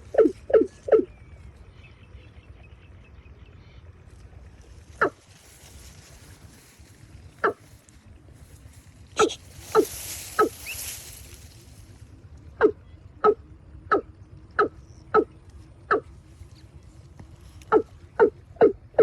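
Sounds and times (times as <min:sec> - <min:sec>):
short sharp animal calls: 0:09.2 - 0:11.3.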